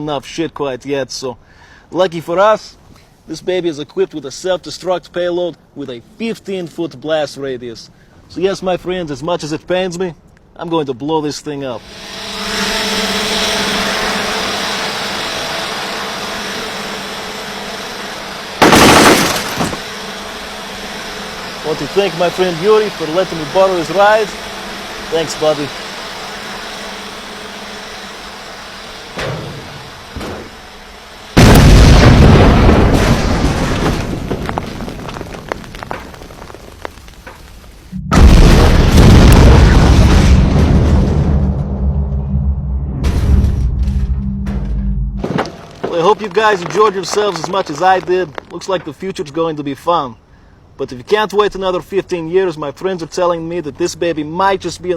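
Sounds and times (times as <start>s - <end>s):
drone rotors humming: 11.8s - 33.1s, 35.6s - 48.5s
loud explosion: 18.6s - 19.7s, 31.4s - 35.9s, 37.9s - 45.4s
crackling: 18.6s - 19.9s, 31.4s - 41.5s, 45.2s - 49.4s
heavy rumble: 31.4s - 48.6s.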